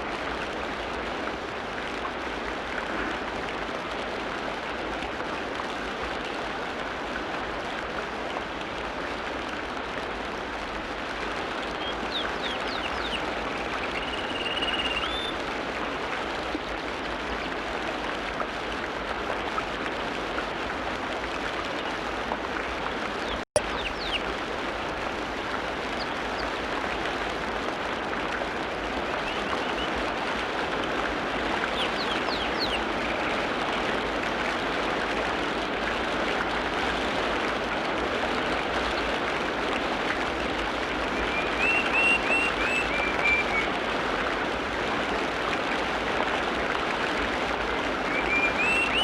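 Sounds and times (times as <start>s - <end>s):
running water: 0.0s - 49.0s
songbirds chirping: 23.3s - 24.3s, 31.6s - 33.3s.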